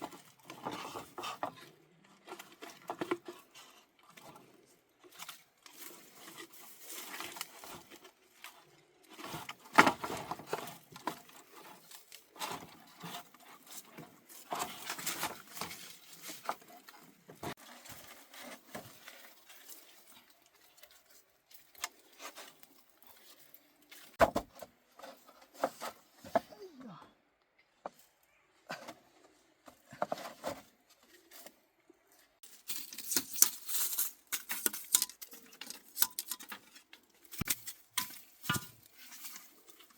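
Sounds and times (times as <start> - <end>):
rustling: 28.0 - 39.9.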